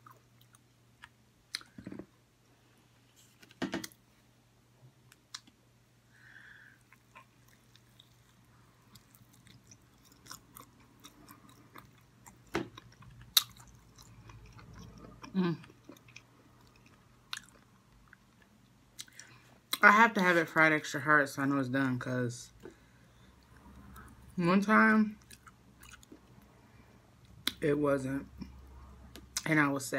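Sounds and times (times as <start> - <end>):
chewing with wet mouth clicks: 6.9 - 19.8, 25.2 - 26.5.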